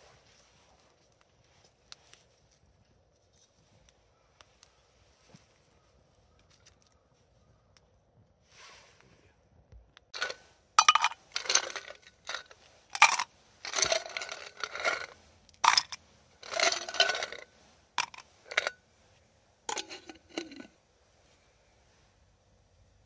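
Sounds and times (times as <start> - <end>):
metal objects clinking and scraping: 10.2 - 18.8, 19.7 - 20.8.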